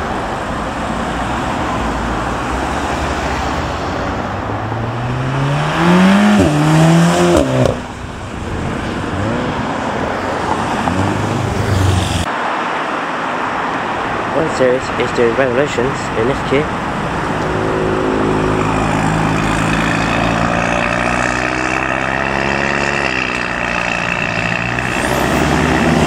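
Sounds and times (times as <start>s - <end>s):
road traffic noise: 0.0s - 26.0s
car accelerating past: 17.2s - 26.0s.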